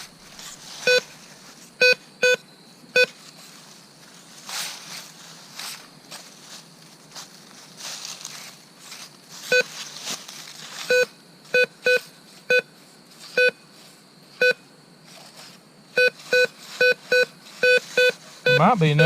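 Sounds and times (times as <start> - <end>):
rustle of leaves: 0.0 - 1.8, 3.2 - 11.2, 15.0 - 18.4
metal detector beeps: 0.8 - 1.1, 1.8 - 3.2, 9.5 - 9.8, 10.8 - 12.7, 13.3 - 13.6, 14.4 - 14.6, 15.9 - 19.0.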